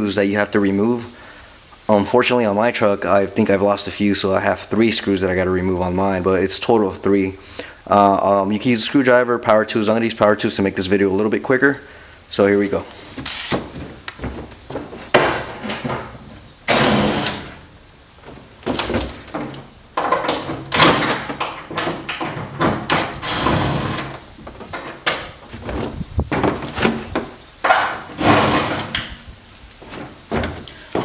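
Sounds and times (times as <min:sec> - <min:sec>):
power drill backing out screws: 0:13.2 - 0:13.9, 0:16.6 - 0:17.8, 0:18.7 - 0:24.3, 0:28.0 - 0:29.2.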